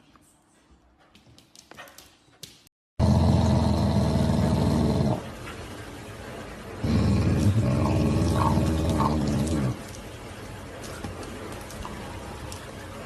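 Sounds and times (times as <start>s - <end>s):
pet growling: 3.0s - 5.4s, 6.8s - 10.0s.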